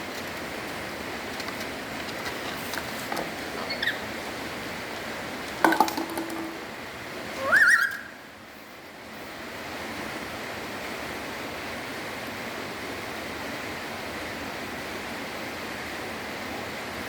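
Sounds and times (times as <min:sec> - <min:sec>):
parrot call: 0:07.4 - 0:08.2.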